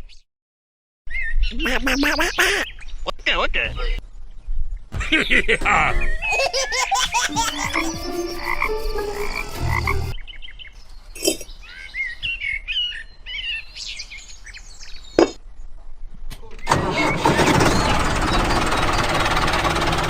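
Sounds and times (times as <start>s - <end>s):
frog-like chirping calls: 6.1s - 10.2s.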